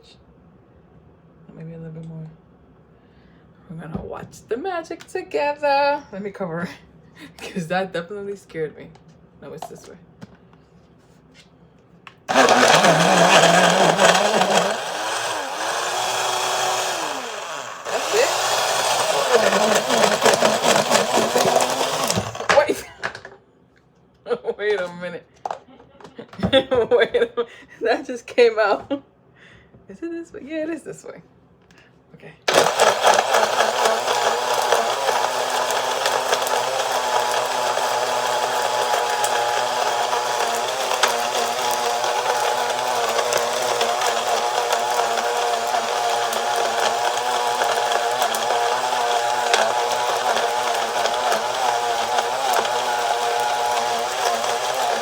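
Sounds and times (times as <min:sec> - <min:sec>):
blender motor running: 0:12.3 - 0:22.7, 0:32.5 - 0:55.0.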